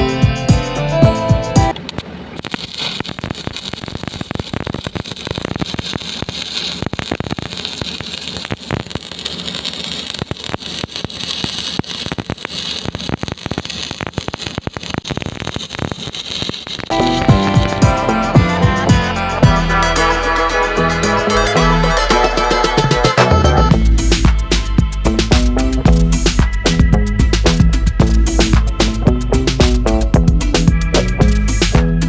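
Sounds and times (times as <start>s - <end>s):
welding arc crackling: 0.1s - 32.0s.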